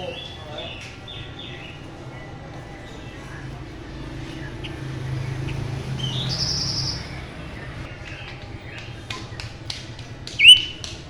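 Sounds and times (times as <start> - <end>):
songbird singing buzzy trill: 0.0 - 11.0.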